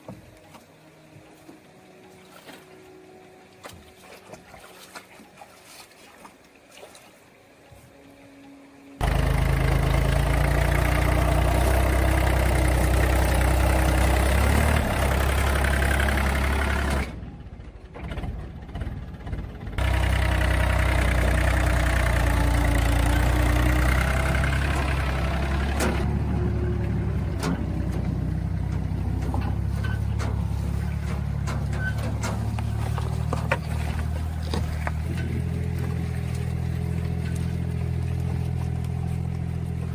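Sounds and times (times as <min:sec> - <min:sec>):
motor running steadily: 0:08.9 - 0:17.8, 0:18.5 - 0:39.9.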